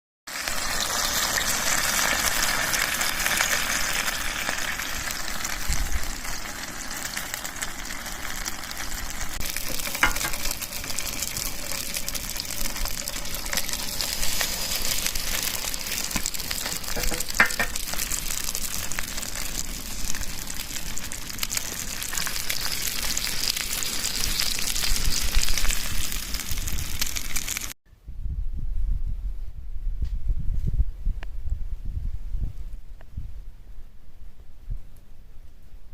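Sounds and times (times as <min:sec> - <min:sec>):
patties sizzling in a frying pan: 0:00.3 - 0:27.8
sharp crackles: 0:00.3 - 0:27.8.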